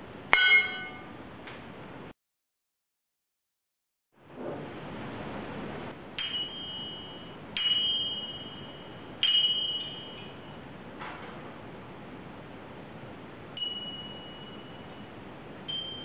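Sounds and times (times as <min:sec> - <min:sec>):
ringing metal strikes: 0:00.3 - 0:01.2, 0:06.2 - 0:10.6, 0:13.6 - 0:15.1.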